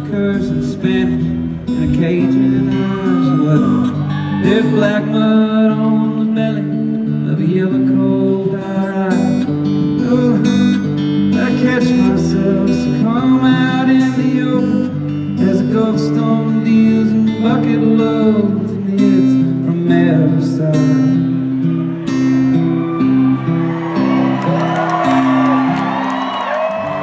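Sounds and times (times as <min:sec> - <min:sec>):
acoustic guitar playing: 0:00.0 - 0:27.0
crowd whooping and cheering: 0:02.7 - 0:05.1, 0:21.6 - 0:27.0.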